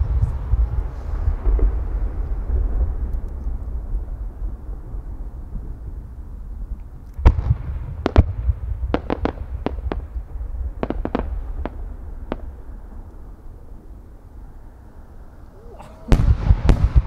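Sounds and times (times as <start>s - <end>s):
fireworks bangs: 15.6s - 17.0s.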